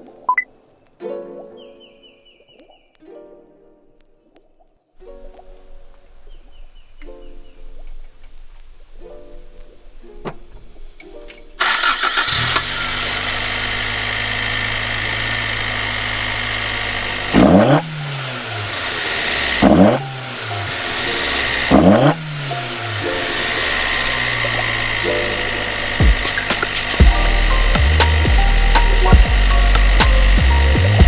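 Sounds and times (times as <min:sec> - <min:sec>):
car engine idling and revving: 0:11.6 - 0:31.0
engine starter cranking: 0:11.6 - 0:31.0.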